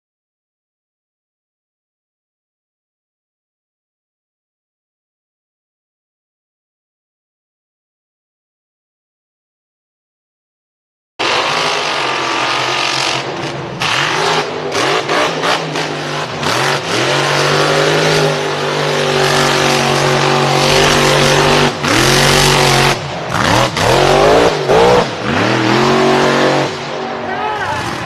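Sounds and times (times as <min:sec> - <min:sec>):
off-road vehicle engine revving: 0:11.2 - 0:28.0.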